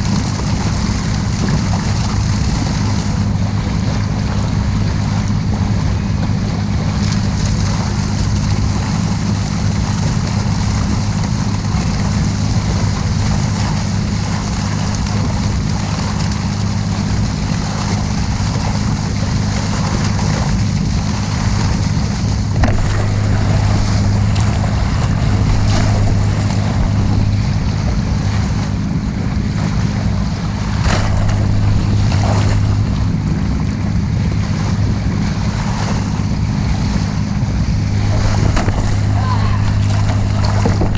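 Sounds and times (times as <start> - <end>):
motorboat engine humming: 0.0 - 40.9
rushing water: 0.0 - 40.9
wind buffeting microphone: 0.0 - 40.9
splashes or knocks: 21.4 - 34.4, 37.7 - 40.9.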